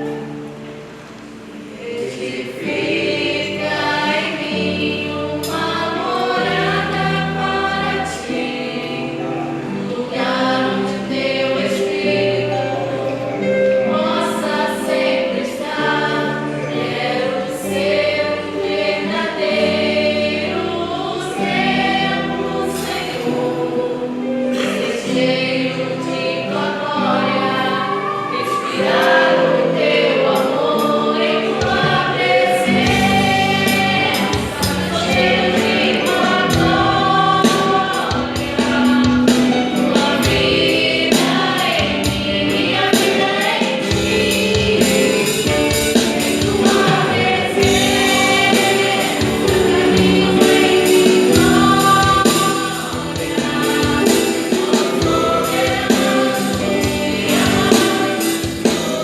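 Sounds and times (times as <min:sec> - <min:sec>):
gospel vocal group singing: 0:00.0 - 0:59.0
bass and drums: 0:43.9 - 0:59.0.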